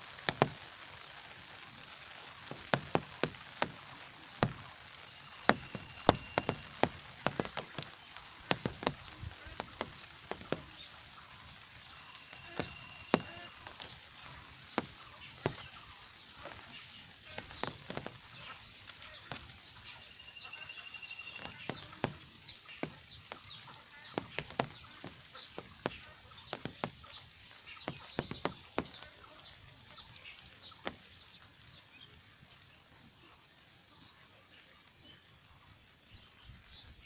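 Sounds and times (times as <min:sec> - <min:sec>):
heavy drops dripping and tapping: 0:00.0 - 0:33.2
steady rain: 0:00.0 - 0:37.0.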